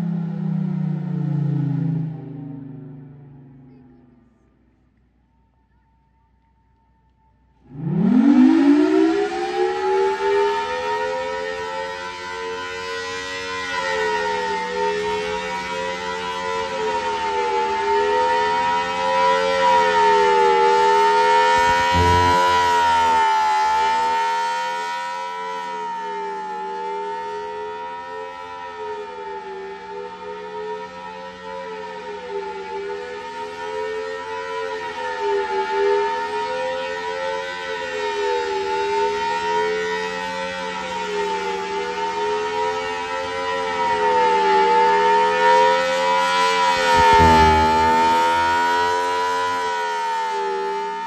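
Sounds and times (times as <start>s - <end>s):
warning siren wavering chord: 0.0s - 4.2s, 7.6s - 51.0s
low rumble: 21.6s - 23.5s, 47.0s - 48.9s.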